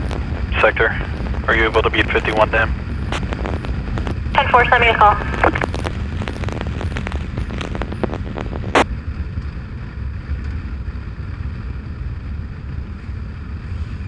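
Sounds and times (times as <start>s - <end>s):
wind rumble: 0.0s - 14.0s
police scanner static: 0.4s - 2.7s, 4.4s - 5.7s.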